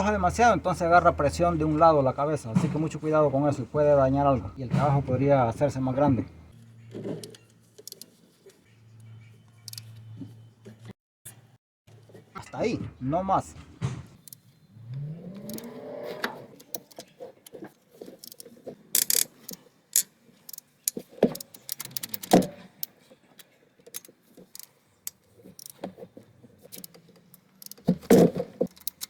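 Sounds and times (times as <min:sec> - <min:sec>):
ratchet clicking: 0:07.8 - 0:08.1, 0:18.2 - 0:22.9, 0:23.8 - 0:24.7, 0:25.6 - 0:25.8, 0:26.7 - 0:27.9, 0:28.7 - 0:29.0.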